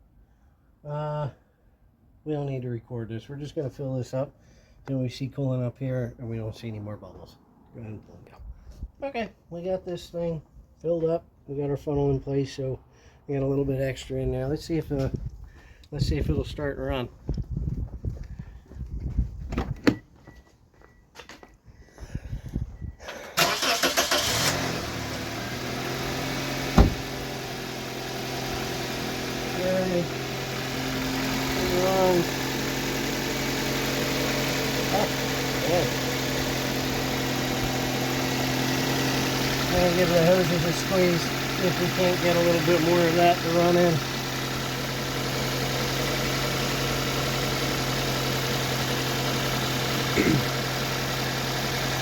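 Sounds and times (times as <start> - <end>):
car engine starting and idling: 22.9 - 52.0
thump: 26.7 - 27.1.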